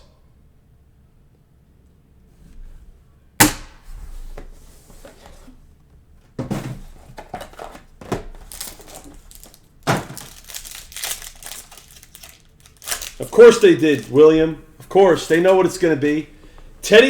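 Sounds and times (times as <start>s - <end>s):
card pack wrappers crinkling: 7.4s - 16.3s.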